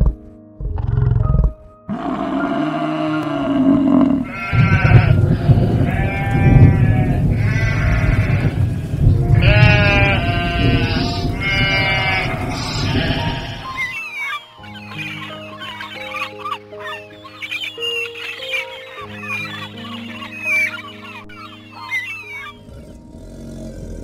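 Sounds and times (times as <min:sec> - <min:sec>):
goats bleating: 0:04.2 - 0:14.0.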